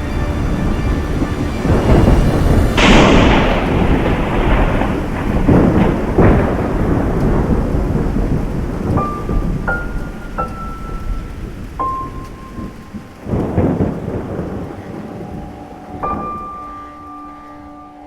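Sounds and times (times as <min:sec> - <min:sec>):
steady high tones: 0:00.0 - 0:04.9
steady rain: 0:00.0 - 0:18.0
thunder cracking and rumbling: 0:00.0 - 0:18.0.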